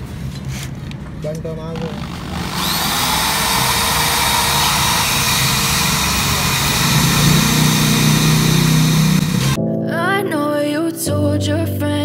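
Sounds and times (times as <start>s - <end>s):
electric drill whining: 1.8s - 9.6s.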